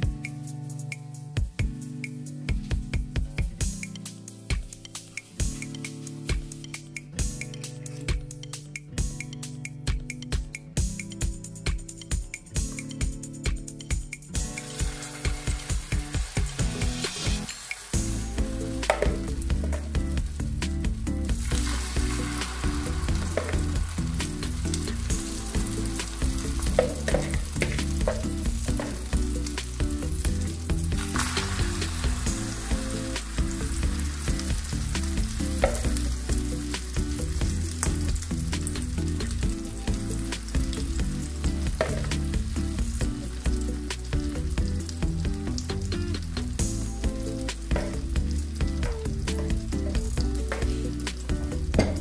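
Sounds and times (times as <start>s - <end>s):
patties sizzling in oil: 3.7s - 6.8s, 14.4s - 52.0s.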